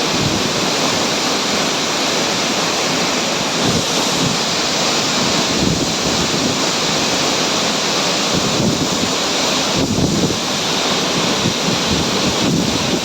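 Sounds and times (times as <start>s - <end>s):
waterfall rushing: 0.0s - 13.0s
wind buffeting microphone: 3.6s - 7.1s, 8.3s - 10.5s, 11.1s - 13.0s.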